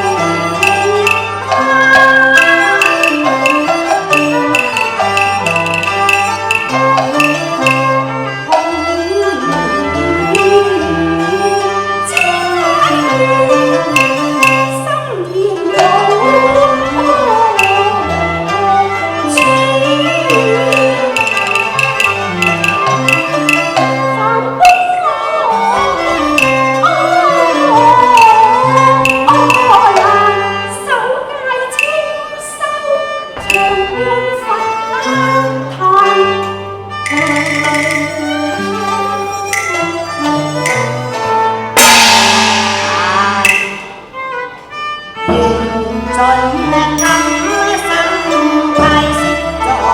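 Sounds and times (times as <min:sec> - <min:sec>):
bowed string melody: 0:00.0 - 0:49.9.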